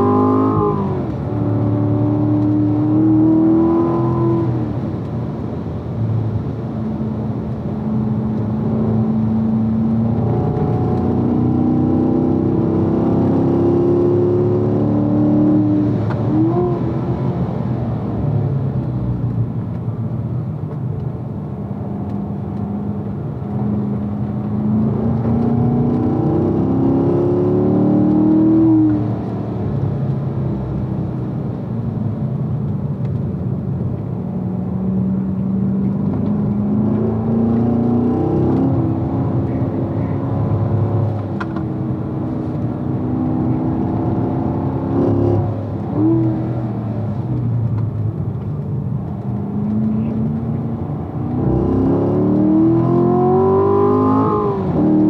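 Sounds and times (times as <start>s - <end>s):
car engine revving: 22.0s - 30.0s, 33.9s - 55.0s.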